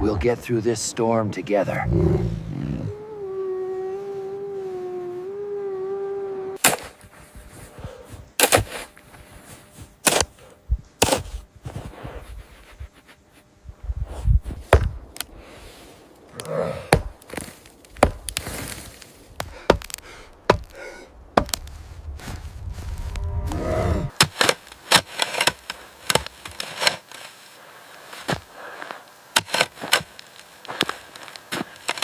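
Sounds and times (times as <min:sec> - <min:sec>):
wood being struck: 0:14.7 - 0:15.0, 0:16.9 - 0:18.5, 0:19.4 - 0:21.8.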